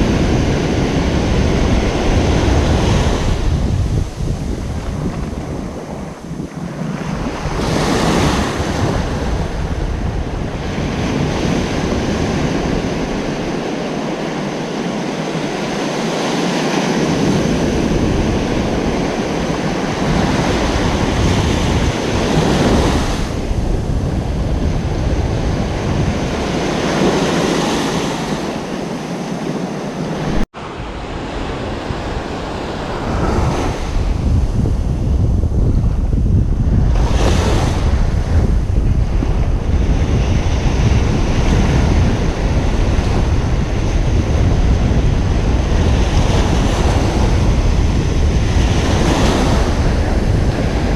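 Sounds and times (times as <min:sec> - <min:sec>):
ocean waves breaking on beach: 0:00.0 - 0:50.9
wind on microphone: 0:00.0 - 0:50.9.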